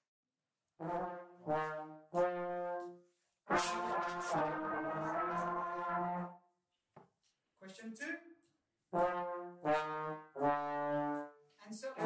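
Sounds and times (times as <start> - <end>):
brass group playing together: 0.8 - 2.9, 3.5 - 6.3, 8.9 - 11.3
single brass instrument notes: 0.8 - 6.3, 8.9 - 11.3.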